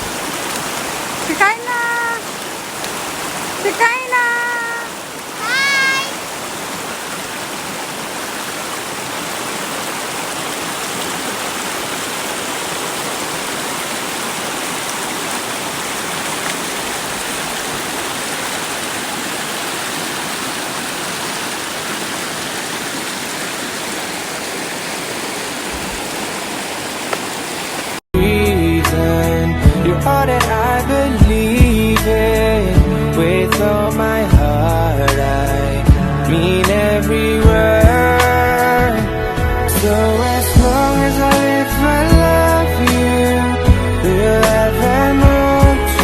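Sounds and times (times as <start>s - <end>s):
running water rushing: 0.0s - 28.1s.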